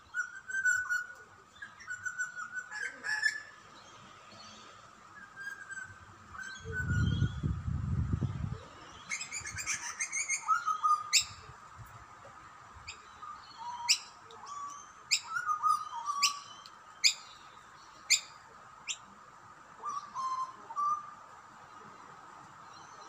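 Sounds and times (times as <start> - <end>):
birds chirping: 12.8 - 23.0.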